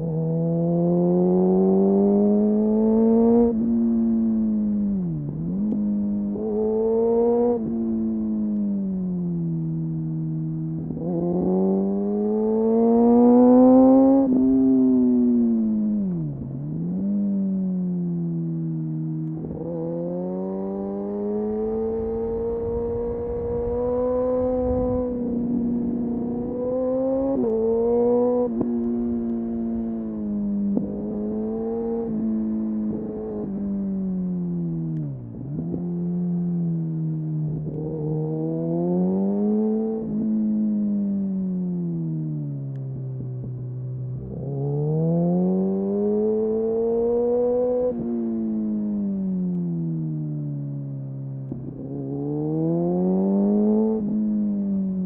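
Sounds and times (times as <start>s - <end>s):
motorcycle engine: 19.0s - 36.7s.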